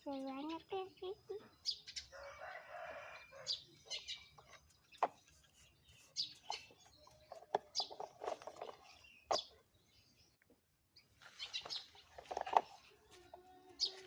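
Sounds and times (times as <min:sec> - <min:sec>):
bird chirps: 0:00.0 - 0:14.0
toy trucks clicking and tapping: 0:06.2 - 0:09.6, 0:11.5 - 0:14.0.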